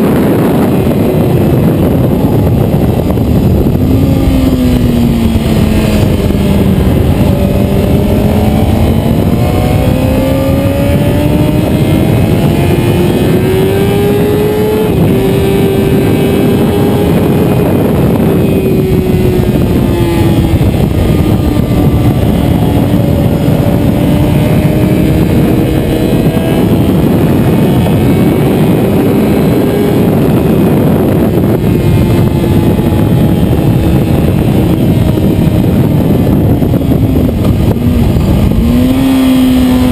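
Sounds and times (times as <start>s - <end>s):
motorcycle engine revving: 0.0s - 39.9s
wind noise rushing: 0.0s - 39.9s.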